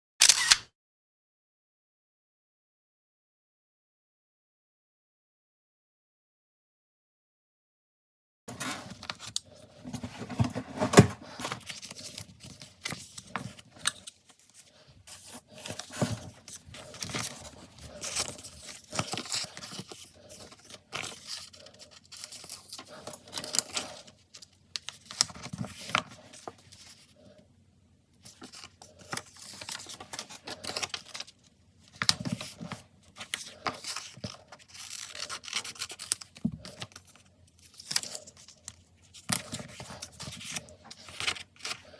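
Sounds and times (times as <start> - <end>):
paper rustling and scraping: 8.5 - 27.2, 28.2 - 41.9.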